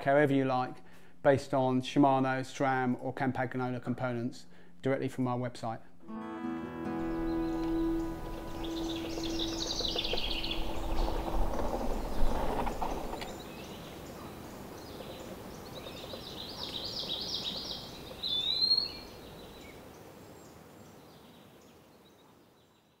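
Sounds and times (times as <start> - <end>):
outdoor ambience: 0.0 - 22.4
bird singing high notes: 6.1 - 14.5
bicycle tyres on gravel: 7.8 - 18.5.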